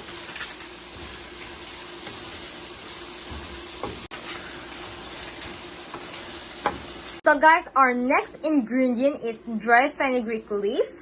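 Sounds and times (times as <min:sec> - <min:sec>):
food sizzling in oil: 0:00.0 - 0:07.9.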